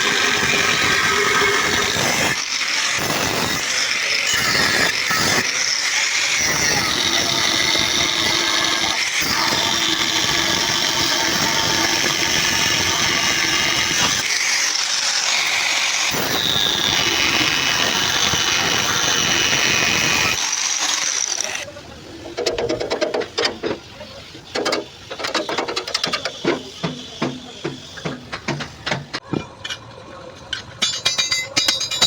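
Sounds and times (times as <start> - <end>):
handheld power tool running: 0.0 - 21.6.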